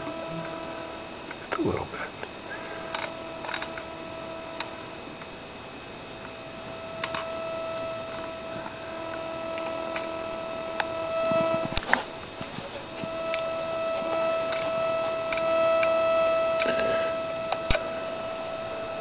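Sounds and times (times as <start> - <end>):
electronic interference hum: 0.0 - 19.0.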